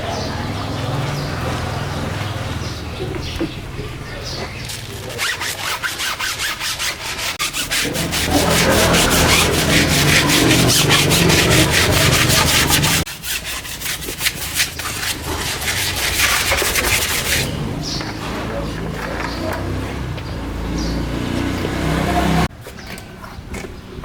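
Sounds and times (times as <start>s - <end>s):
fast rhythmic scrubbing: 4.6s - 19.5s.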